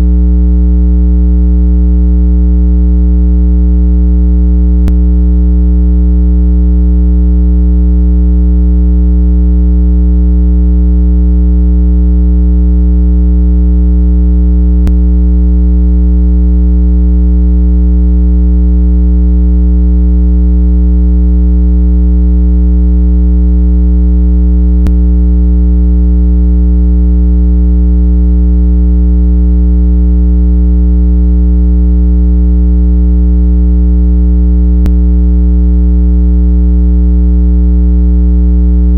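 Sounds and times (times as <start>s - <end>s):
low electronic tone: 0.0s - 0.8s, 4.6s - 6.6s, 14.4s - 16.6s, 24.4s - 26.0s, 34.8s - 35.2s
faint tick: 14.8s - 15.0s.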